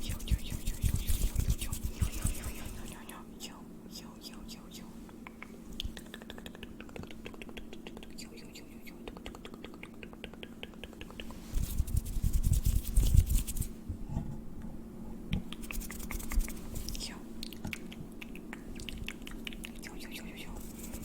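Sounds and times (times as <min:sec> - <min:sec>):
rustling against microphone: 0:00.1 - 0:03.0, 0:11.1 - 0:14.4.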